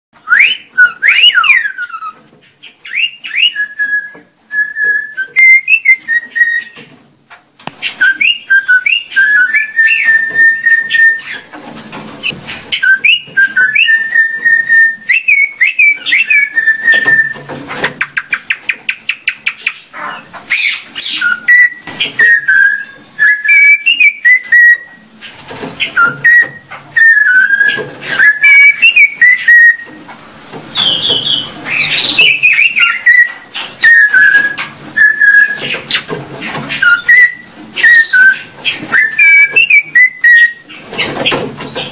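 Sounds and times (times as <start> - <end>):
pet bird whistling: 0.2 - 2.2, 2.8 - 6.8, 7.8 - 11.5, 12.7 - 17.5, 18.1 - 25.0, 25.8 - 30.0, 30.7 - 36.0, 36.7 - 40.8.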